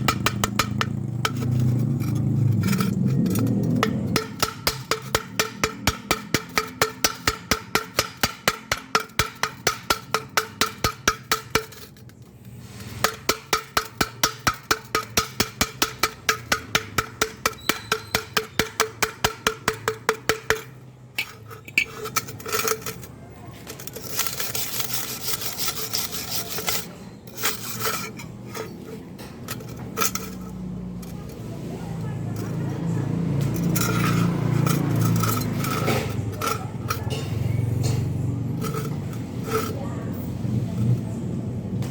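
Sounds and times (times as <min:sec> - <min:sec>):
hammer tapping steel tube: 0:00.0 - 0:01.8, 0:02.6 - 0:11.9, 0:13.0 - 0:23.0, 0:32.0 - 0:40.2.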